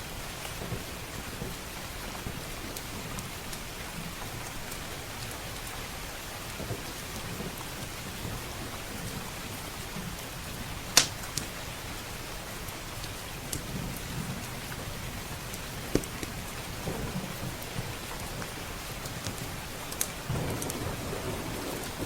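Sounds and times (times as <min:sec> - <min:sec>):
rain hissing: 0:00.0 - 0:22.0
wood fire crackling: 0:00.0 - 0:22.0
loud sharp fire pop: 0:11.0 - 0:11.2, 0:20.3 - 0:20.8
low thunder rumble: 0:13.6 - 0:22.0.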